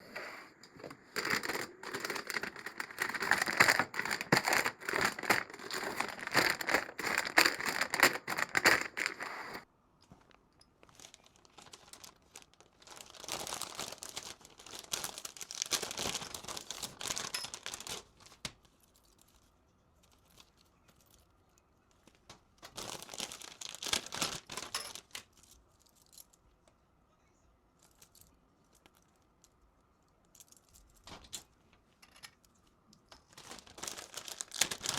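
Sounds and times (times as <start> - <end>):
plastic packaging crinkling: 0.5 - 9.6, 10.8 - 21.3, 22.0 - 26.3, 33.1 - 34.9.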